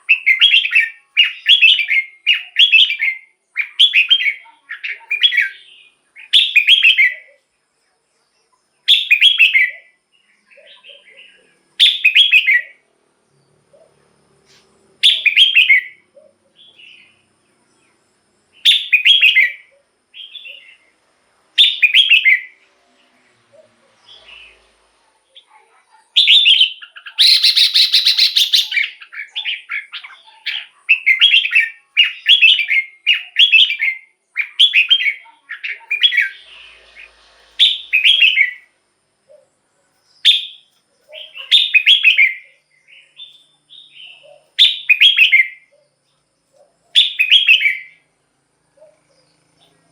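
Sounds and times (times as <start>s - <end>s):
bird warbling song: 8.8s - 14.1s, 15.0s - 18.0s, 21.6s - 48.1s
harsh scratchy bird call: 26.2s - 38.8s.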